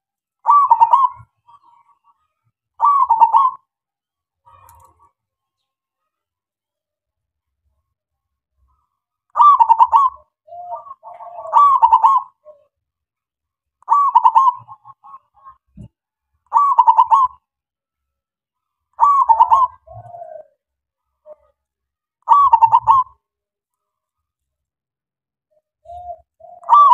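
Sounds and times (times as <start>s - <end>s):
dove cooing: 0.5s - 1.6s, 2.8s - 3.6s, 9.4s - 12.7s, 13.9s - 15.9s, 16.5s - 17.4s, 19.0s - 20.6s, 22.3s - 23.2s, 25.5s - 26.9s.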